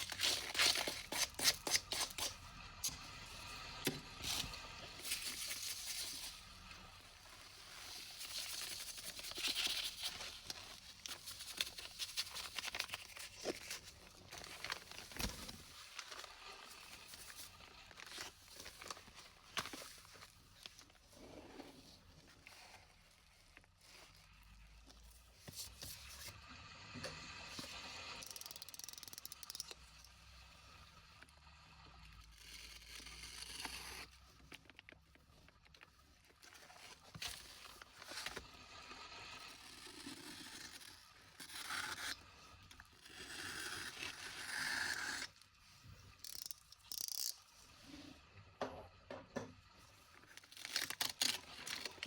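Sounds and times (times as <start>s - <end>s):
material tearing and crinkling: 0.0s - 3.0s, 7.2s - 21.1s, 50.2s - 52.0s.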